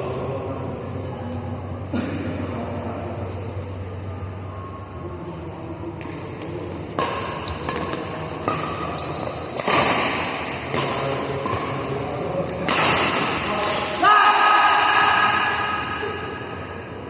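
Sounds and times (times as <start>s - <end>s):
rackets hitting shuttlecock: 5.9s - 14.0s.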